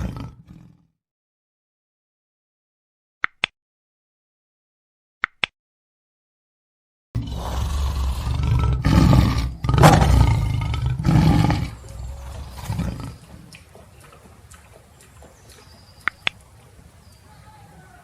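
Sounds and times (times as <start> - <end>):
lion roaring: 0.0 - 0.8, 7.2 - 13.2.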